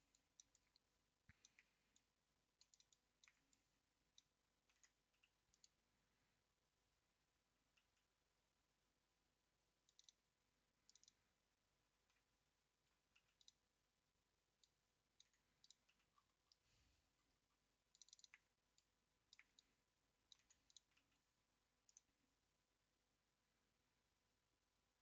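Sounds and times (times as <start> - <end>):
typing on keyboard: 10.9 - 11.2, 18.0 - 18.5.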